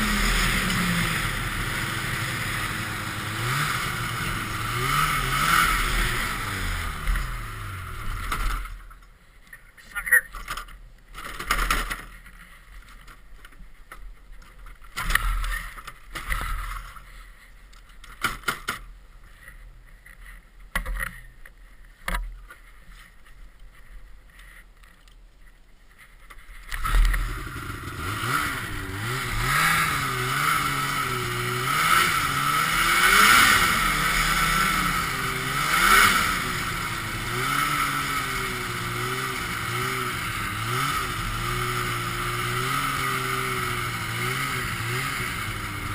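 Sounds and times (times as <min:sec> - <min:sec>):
snowmobile engine revving: 0:00.0 - 0:08.7, 0:26.7 - 0:45.9.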